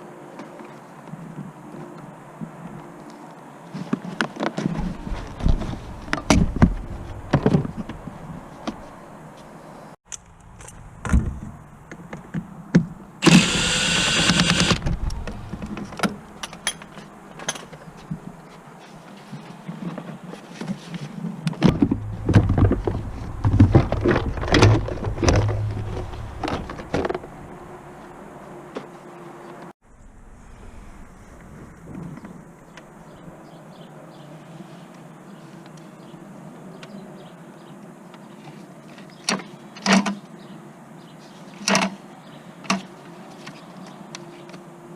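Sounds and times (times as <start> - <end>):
power tool or spray burst: 13.2 - 14.8.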